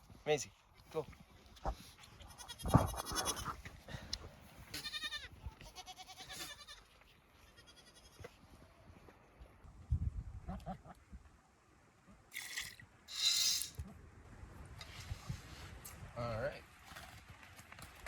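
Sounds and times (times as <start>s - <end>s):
goats bleating: 2.2s - 3.6s, 4.7s - 8.3s.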